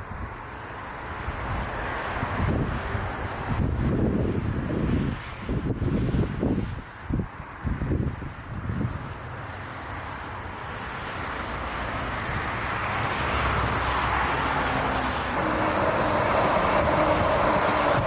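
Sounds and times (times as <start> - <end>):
jet airliner engine noise: 0.0 - 18.0
steady whine: 15.3 - 18.0.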